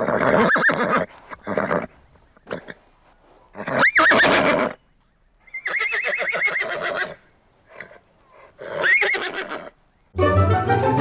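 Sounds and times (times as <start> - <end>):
horse neighing: 0.0 - 2.8, 3.5 - 4.8, 5.5 - 9.8.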